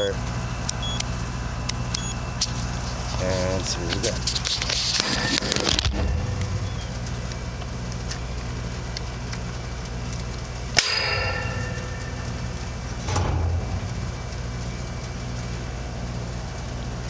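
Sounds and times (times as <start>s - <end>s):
low electrical hum: 0.0s - 17.0s
metal tools clinking on sheet metal: 10.8s - 13.3s.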